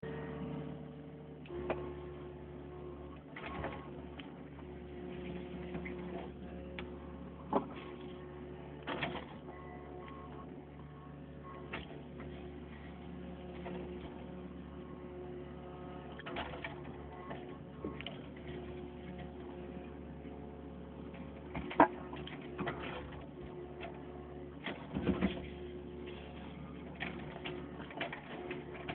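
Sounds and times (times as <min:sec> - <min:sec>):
backhoe engine whining: 0:00.0 - 0:28.9.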